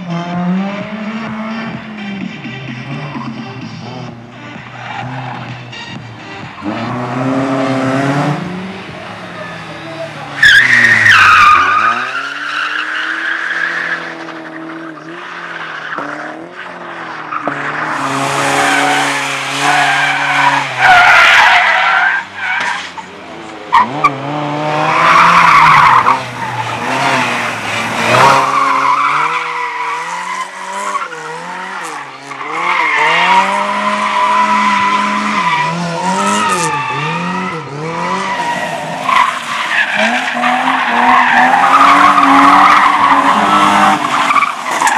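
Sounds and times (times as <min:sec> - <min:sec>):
car engine revving hard: 0:06.6 - 0:21.0, 0:23.3 - 0:44.9
tyre squeal: 0:09.4 - 0:14.2.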